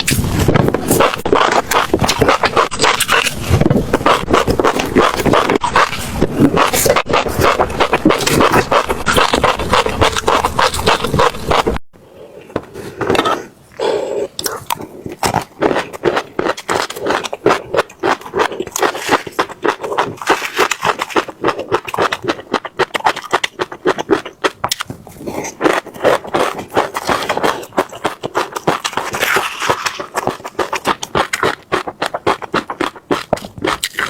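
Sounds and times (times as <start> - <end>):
chewing crunchy seeds: 0.0 - 11.8, 13.2 - 34.0.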